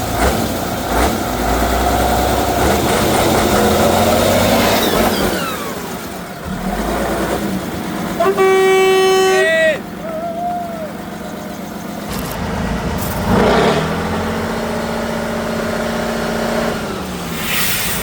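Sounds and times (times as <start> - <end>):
truck engine revving: 0.0 - 18.0
horn blaring steady tone: 8.0 - 11.9.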